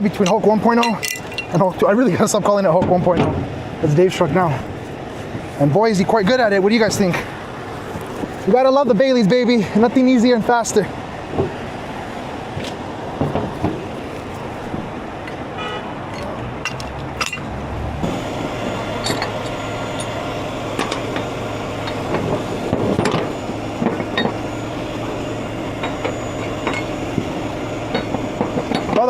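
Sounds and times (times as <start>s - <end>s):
metallic clanks and rattles: 0.0s - 1.7s, 16.1s - 17.5s, 19.0s - 20.2s, 20.8s - 24.6s, 25.3s - 29.0s
truck engine running: 0.0s - 29.0s.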